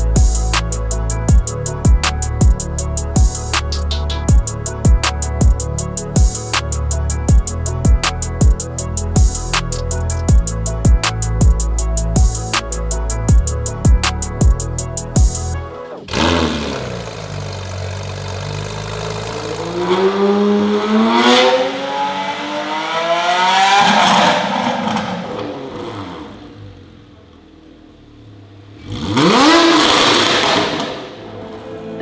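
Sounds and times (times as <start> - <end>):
background music: 0.0 - 25.2, 29.0 - 32.0
sports car engine accelerating: 16.1 - 32.0.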